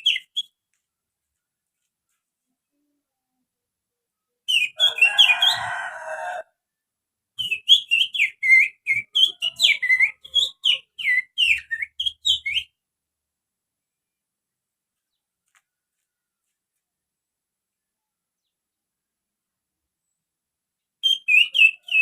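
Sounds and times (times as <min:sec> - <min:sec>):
finger whistling birdsong imitation: 0:00.0 - 0:00.6, 0:04.5 - 0:05.7, 0:07.4 - 0:12.8, 0:21.0 - 0:22.0.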